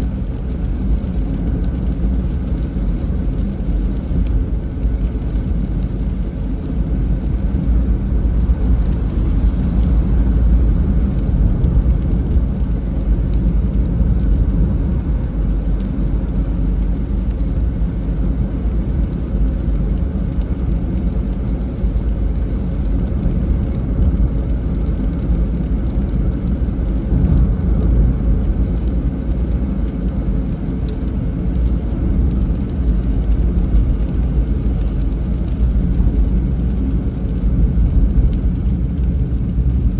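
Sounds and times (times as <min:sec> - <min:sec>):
car driving on wet road: 0:00.0 - 0:39.9.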